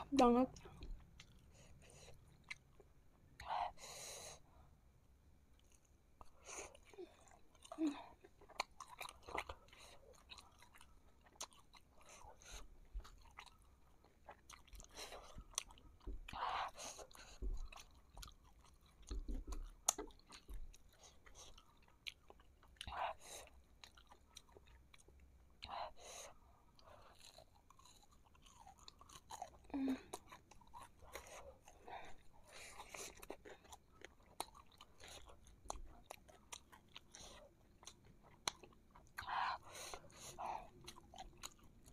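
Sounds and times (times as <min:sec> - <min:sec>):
soft crunches of chewing: 0:00.6 - 0:03.1, 0:05.5 - 0:41.9
wet chewing smacks: 0:05.6 - 0:22.9.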